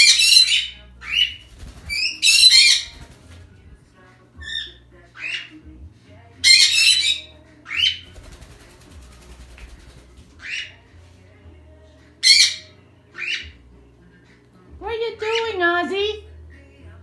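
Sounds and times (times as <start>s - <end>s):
parrot screeching: 0.0s - 3.2s, 4.5s - 5.5s, 6.4s - 8.1s, 10.4s - 10.7s, 12.2s - 13.4s
parrots squawking: 0.0s - 3.4s, 4.4s - 5.6s, 6.4s - 10.8s, 12.2s - 13.5s.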